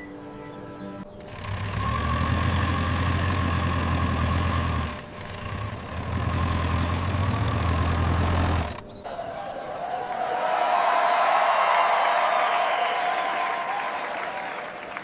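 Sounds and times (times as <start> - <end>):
heavy machinery engine humming: 0.0 - 9.0.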